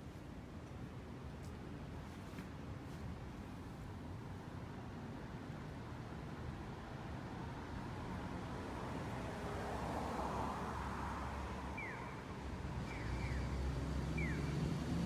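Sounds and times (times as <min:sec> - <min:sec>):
road traffic rumble: 0:06.5 - 0:15.0.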